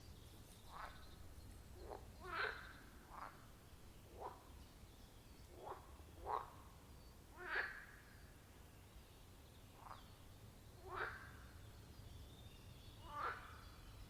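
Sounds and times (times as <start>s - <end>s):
frogs croaking: 1.8s - 3.4s.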